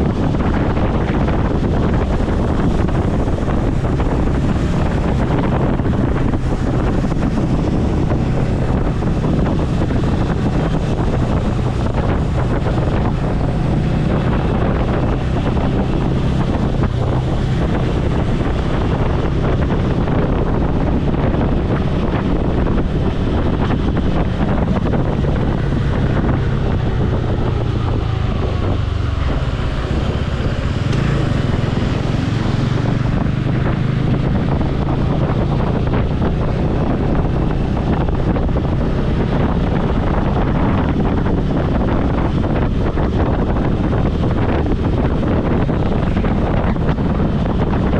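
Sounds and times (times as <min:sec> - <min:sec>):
motorcycle engine running: 0:00.0 - 0:47.9
wind buffeting microphone: 0:00.0 - 0:47.9.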